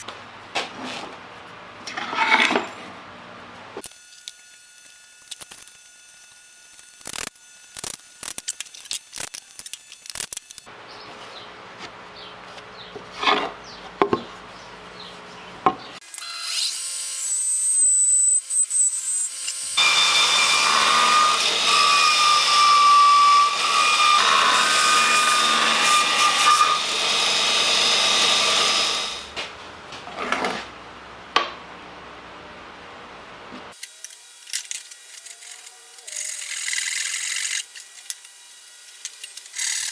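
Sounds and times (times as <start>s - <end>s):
power tool cutting wood: 3.8s - 10.7s, 16.0s - 29.3s, 33.7s - 39.9s
power tool motor running: 3.8s - 10.7s, 16.0s - 21.7s, 33.8s - 39.9s.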